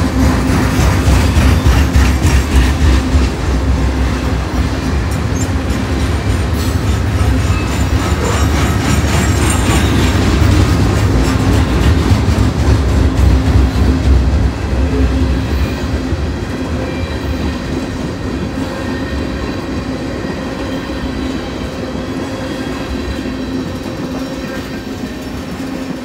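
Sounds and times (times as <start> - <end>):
freight train rumbling past: 0.0 - 26.0
wheels clicking over rail joints: 4.3 - 14.2.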